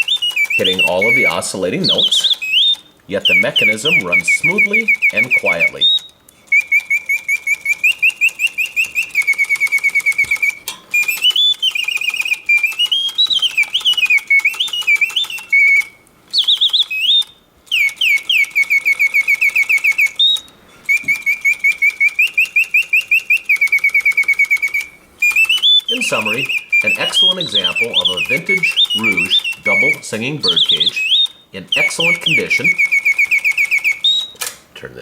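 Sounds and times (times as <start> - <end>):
mechanical bird song whistle: 0.0 - 34.6.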